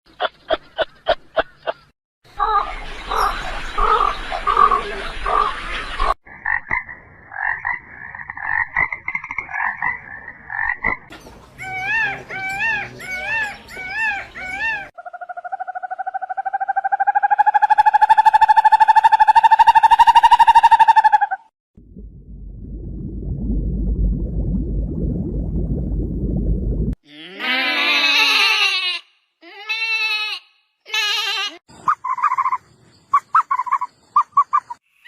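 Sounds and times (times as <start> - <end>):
rapid pulsed animal calls: 11.6 - 21.5.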